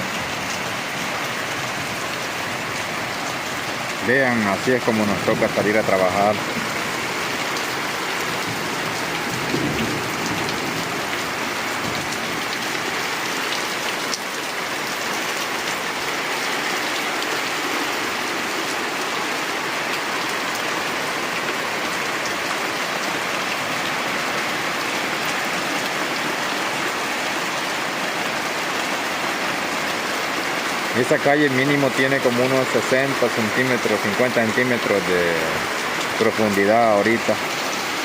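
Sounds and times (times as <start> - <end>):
rain drumming on surfaces: 0.0 - 38.0.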